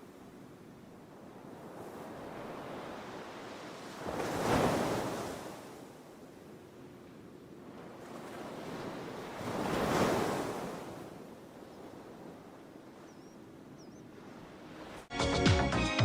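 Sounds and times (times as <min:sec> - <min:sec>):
background wash of surf: 0:00.0 - 0:15.1
ocean wave washing on shore: 0:01.2 - 0:06.0, 0:07.8 - 0:12.6.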